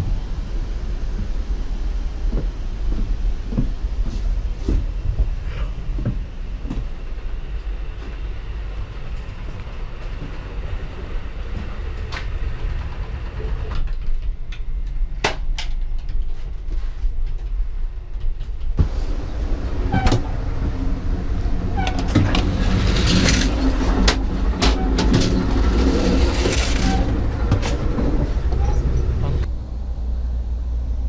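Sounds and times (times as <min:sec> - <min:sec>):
train rumble from inside: 0:00.0 - 0:31.0
knocks and rattles: 0:19.8 - 0:29.5.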